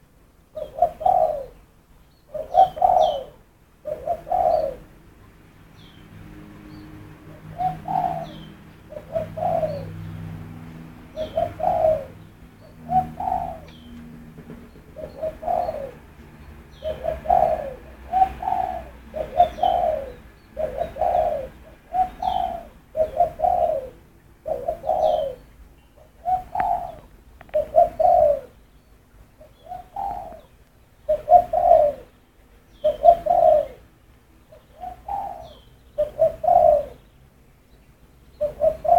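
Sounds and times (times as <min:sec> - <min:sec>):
bird giving mellow calls: 0:02.3 - 0:04.8, 0:11.2 - 0:14.0, 0:16.8 - 0:28.6.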